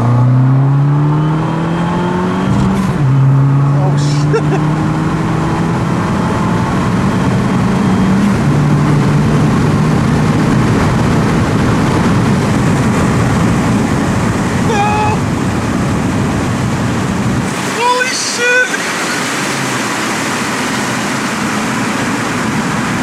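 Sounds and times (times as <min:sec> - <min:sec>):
car engine accelerating: 0:00.0 - 0:18.0
wind and road noise: 0:00.0 - 0:23.0.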